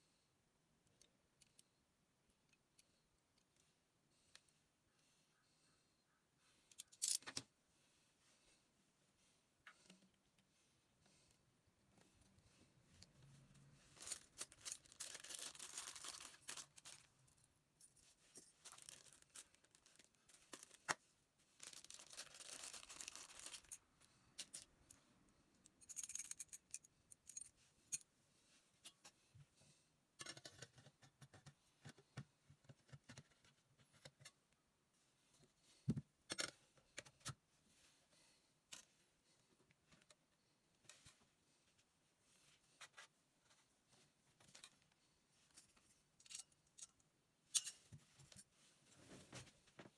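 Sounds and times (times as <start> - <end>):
rustling or scraping: 13.2 - 17.1.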